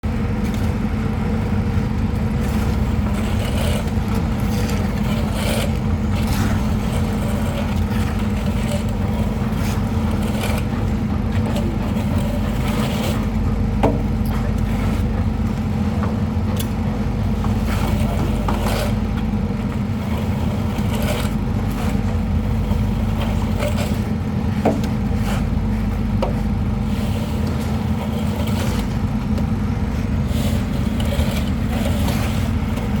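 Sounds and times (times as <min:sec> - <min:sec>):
engine drone: 0:00.0 - 0:33.0
trowels scraping plaster: 0:02.4 - 0:13.4, 0:26.8 - 0:33.0.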